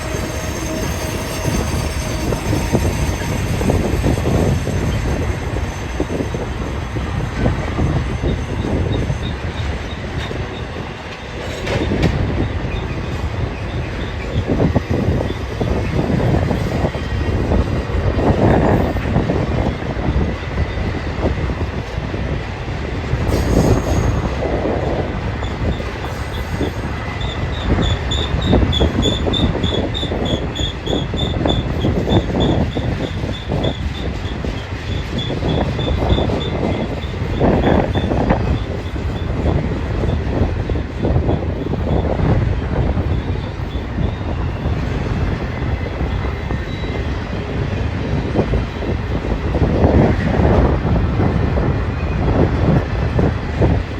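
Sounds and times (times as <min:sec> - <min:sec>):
high wheel squeal: 0:00.0 - 0:10.8, 0:23.3 - 0:39.5
freight train rumble and clatter: 0:00.0 - 0:53.9.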